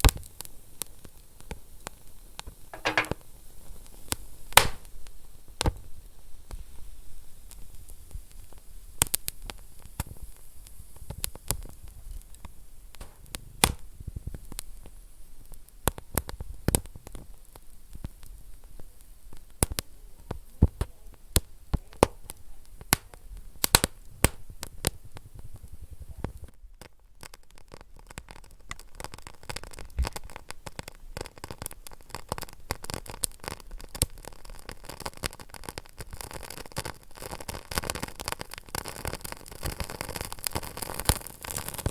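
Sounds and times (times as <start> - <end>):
wood fire crackling: 0.0 - 41.9
fire popping: 2.8 - 41.9
fire hiss: 3.8 - 26.6
low fire rumble: 4.6 - 26.8.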